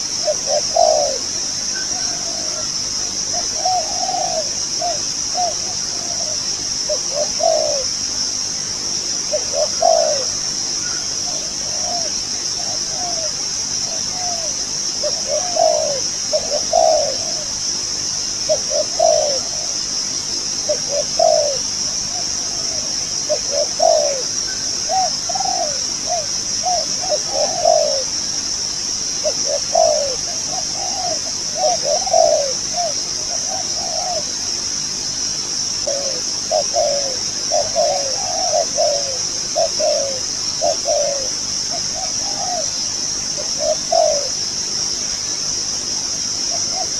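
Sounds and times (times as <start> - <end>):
dove cooing: 0.0 - 8.2, 9.2 - 17.7, 18.4 - 20.0, 20.6 - 34.6, 35.8 - 44.5, 46.5 - 46.9
steady high-pitched hiss: 0.0 - 46.9.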